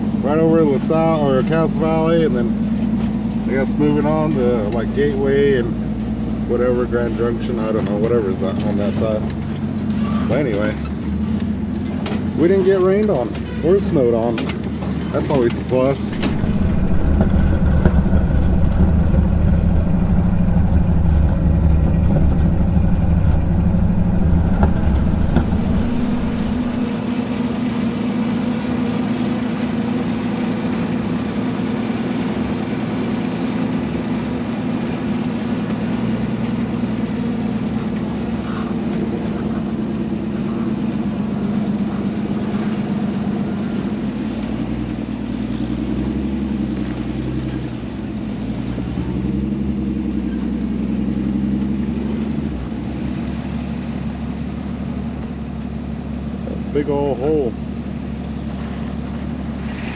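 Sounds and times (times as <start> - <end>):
truck engine running: 0.0 - 59.9
heavy low rumble: 15.8 - 46.6.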